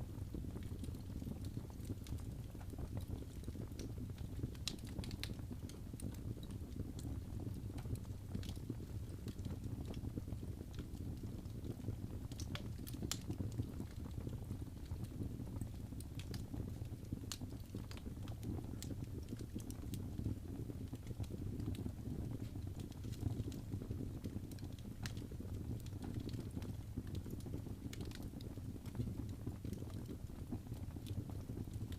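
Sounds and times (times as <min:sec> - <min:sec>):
fire crackling and popping: 0:00.0 - 0:31.9
fire rumbling: 0:00.0 - 0:31.9.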